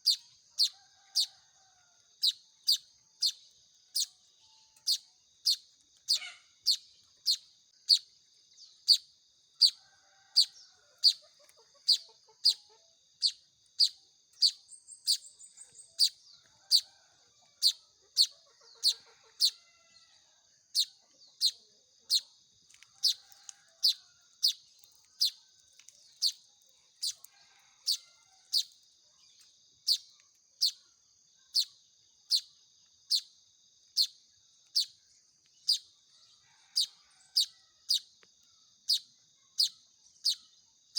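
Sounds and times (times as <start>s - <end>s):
bird chick begging chirps: 0.0s - 1.3s, 2.2s - 8.1s, 8.8s - 9.8s, 10.4s - 16.9s, 17.5s - 19.9s, 20.7s - 22.3s, 23.0s - 24.6s, 25.2s - 25.4s, 26.2s - 26.4s, 27.0s - 28.8s, 29.9s - 30.9s, 31.5s - 32.5s, 33.1s - 33.3s, 35.6s - 35.9s, 36.7s - 38.1s, 38.8s - 40.5s.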